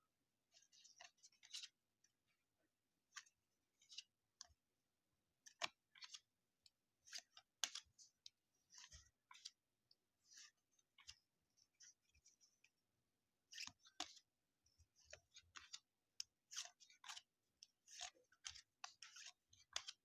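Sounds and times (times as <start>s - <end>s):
cards being handled: 0.8s - 1.7s, 5.5s - 6.3s, 7.0s - 7.9s, 15.0s - 15.8s, 16.5s - 20.0s.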